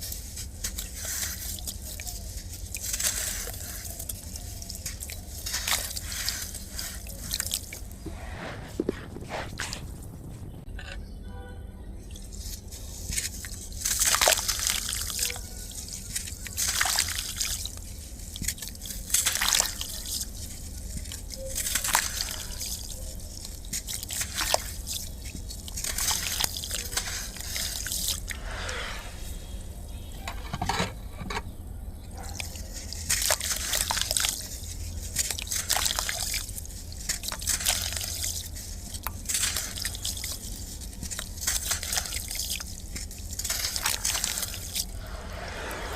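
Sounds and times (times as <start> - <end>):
sand crumbling into water: 0.0 - 10.7.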